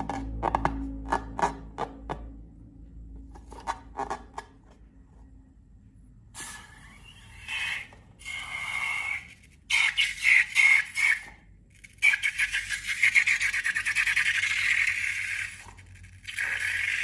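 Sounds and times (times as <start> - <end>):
rubbing with thin squeak: 6.4 - 17.0.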